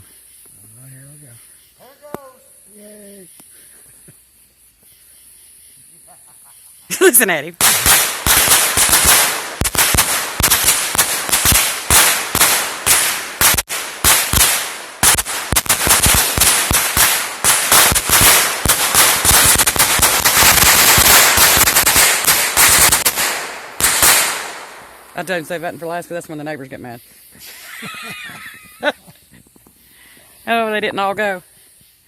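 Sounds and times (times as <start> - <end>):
firecrackers popping: 6.9 - 26.5.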